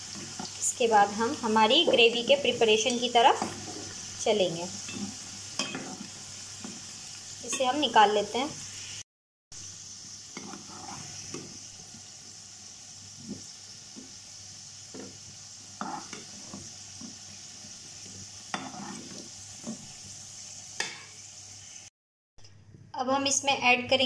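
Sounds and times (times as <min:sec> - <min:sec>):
potatoes sizzling in oil: 0:00.0 - 0:21.9
steel spatula scraping a pan: 0:01.8 - 0:04.1, 0:04.8 - 0:08.0, 0:10.3 - 0:11.4, 0:15.8 - 0:20.0.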